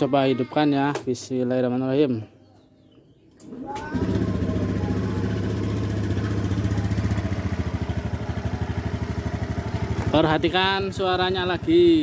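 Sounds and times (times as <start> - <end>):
scooter engine idling: 3.5 - 12.0.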